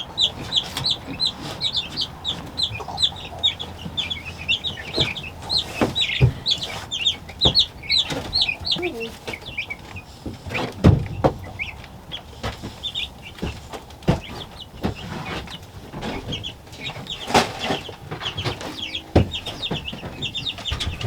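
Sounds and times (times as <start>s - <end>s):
chicks peeping: 0.0s - 21.0s
knocks and bumps from handling: 10.3s - 21.0s.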